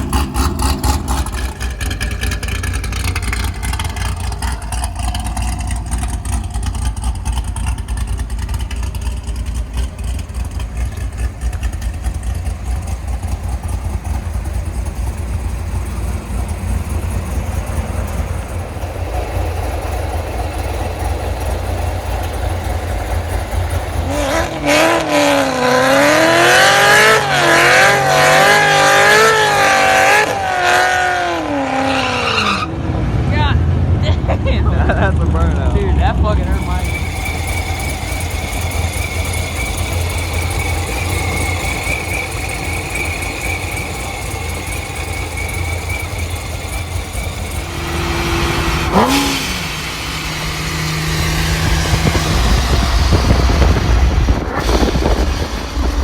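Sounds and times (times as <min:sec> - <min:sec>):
car engine deep rumble: 0:00.0 - 0:56.0
squealing high tone: 0:36.4 - 0:56.0.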